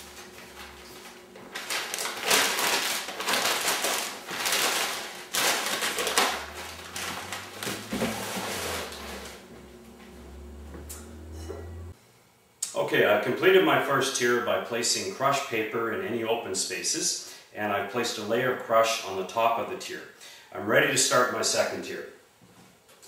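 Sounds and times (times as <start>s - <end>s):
packing paper rustling and crinkling: 0.0s - 9.5s.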